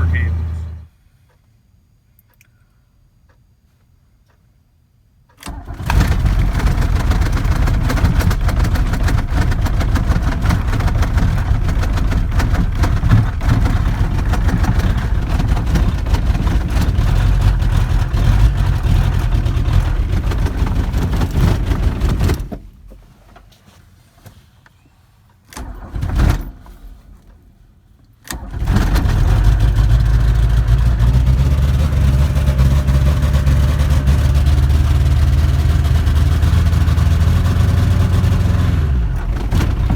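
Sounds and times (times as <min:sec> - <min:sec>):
truck engine running: 0:00.0 - 0:00.9, 0:05.5 - 0:22.7, 0:28.4 - 0:39.9.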